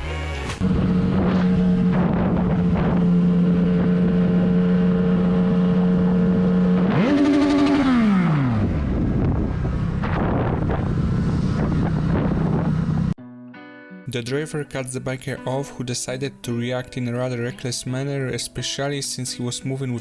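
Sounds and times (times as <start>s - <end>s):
motorcycle engine running: 0.6s - 13.2s
road and wind rumble: 0.6s - 13.2s.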